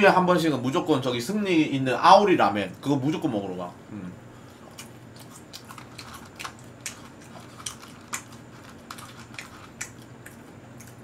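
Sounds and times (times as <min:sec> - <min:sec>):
faint steady hum: 0:00.0 - 0:11.0
chewing fries: 0:04.4 - 0:11.0.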